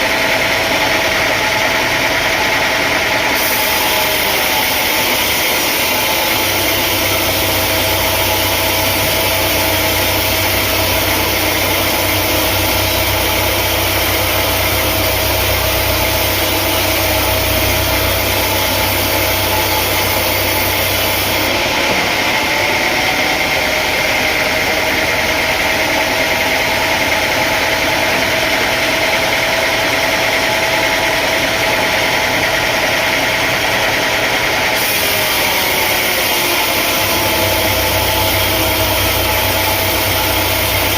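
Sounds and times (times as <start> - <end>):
engine-driven machinery running: 0.0 - 40.9
deep hum: 6.3 - 21.5, 37.2 - 40.9.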